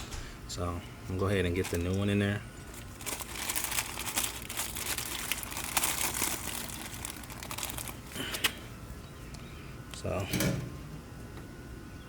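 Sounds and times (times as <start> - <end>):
plastic packaging crinkling: 1.1 - 8.7.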